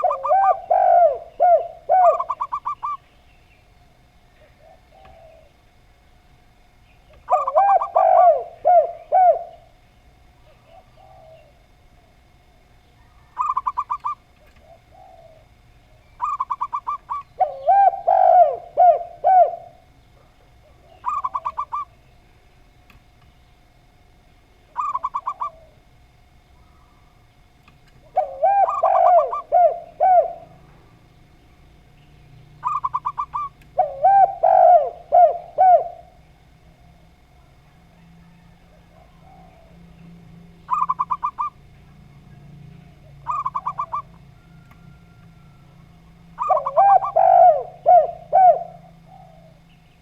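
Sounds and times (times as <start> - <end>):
dove cooing: 0.0 - 3.1, 4.4 - 5.9, 7.1 - 12.2, 13.0 - 22.0, 24.7 - 26.2, 28.0 - 31.0, 32.6 - 36.7, 37.7 - 49.8
dove trilling: 0.0 - 6.0, 6.7 - 12.2, 12.8 - 22.2, 24.6 - 27.4, 28.0 - 36.7, 37.9 - 50.0.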